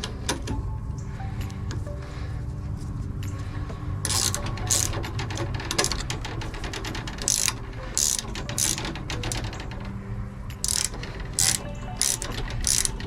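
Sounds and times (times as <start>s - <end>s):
mechanical ratcheting and clicking: 4.0s - 13.0s.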